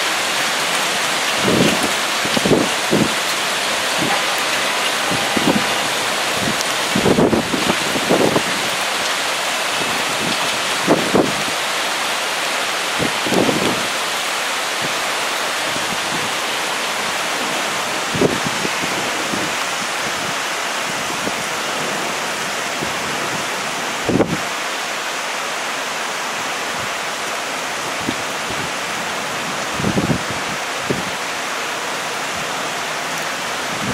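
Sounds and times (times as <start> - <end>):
wind gusts buffeting microphone: 0.0 - 11.7, 12.9 - 14.0, 14.6 - 24.5, 27.8 - 31.2, 33.2 - 33.9
heavy rain hissing: 0.0 - 33.9.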